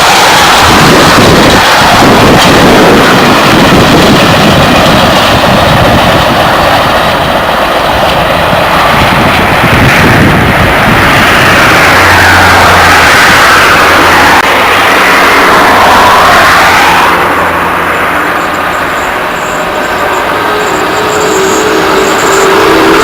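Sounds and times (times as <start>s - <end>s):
train passing close by: 0.0s - 23.0s.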